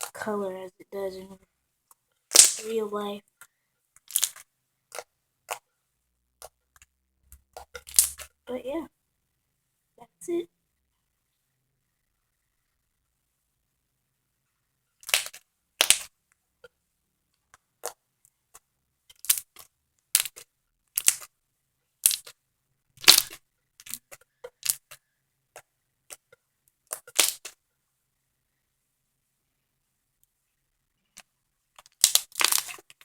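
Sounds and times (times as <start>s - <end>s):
slime air pockets popping: 15.0s - 16.1s, 26.9s - 27.5s.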